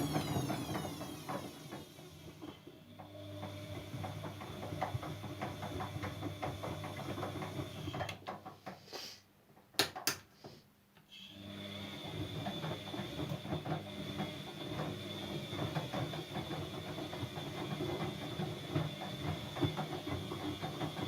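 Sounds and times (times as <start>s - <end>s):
washing machine motor humming: 0.0s - 8.7s, 11.4s - 21.0s
washing machine clicking: 0.0s - 8.8s.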